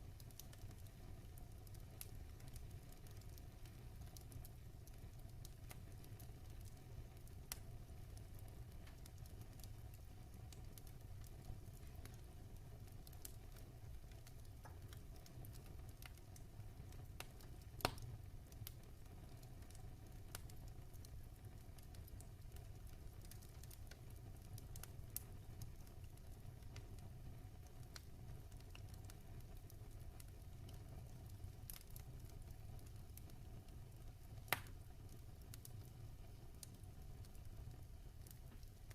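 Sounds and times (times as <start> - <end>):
wood fire crackling: 0.0 - 38.9
sharp fire crack: 17.2 - 18.8, 34.3 - 35.9.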